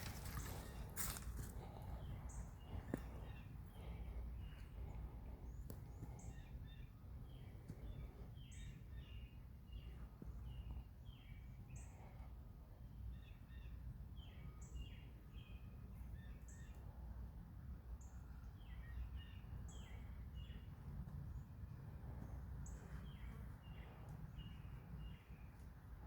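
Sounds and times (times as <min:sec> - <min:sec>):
birds chirping and calling: 0:00.0 - 0:09.8
steady low rumble: 0:00.0 - 0:12.8.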